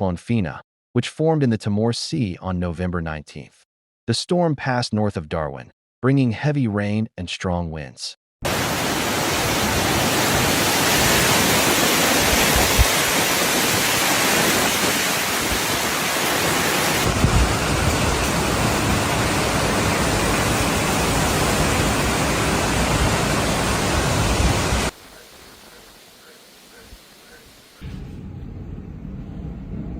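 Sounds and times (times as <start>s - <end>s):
strong wind: 8.5s - 25.0s
heavy rain: 8.5s - 27.8s.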